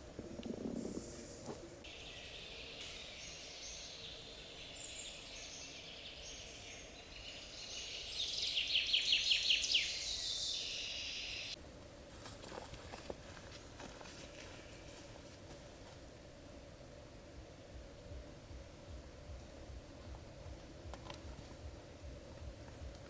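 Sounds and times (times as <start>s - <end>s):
rapid rhythmic pulses: 17.7s - 23.0s.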